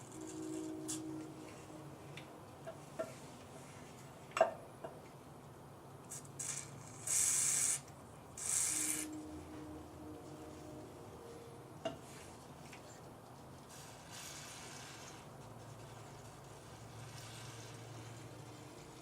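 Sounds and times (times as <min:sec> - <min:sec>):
short hissing bursts: 0:06.1 - 0:09.2, 0:13.7 - 0:15.4, 0:17.0 - 0:18.5.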